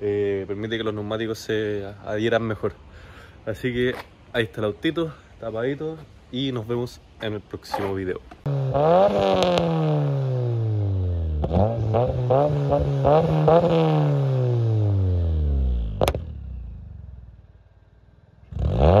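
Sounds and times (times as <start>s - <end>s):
exhaust pop: 8.4s - 10.8s, 11.4s - 14.8s, 15.8s - 16.8s
car engine revving: 8.5s - 17.3s, 18.4s - 19.0s.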